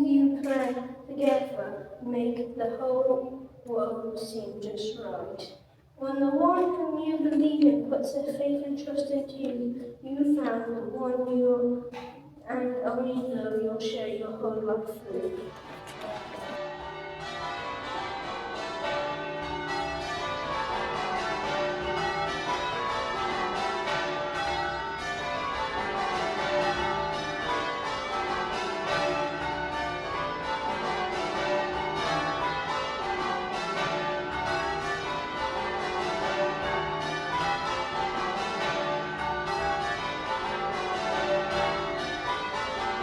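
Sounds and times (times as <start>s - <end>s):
church bells ringing: 14.1s - 43.0s.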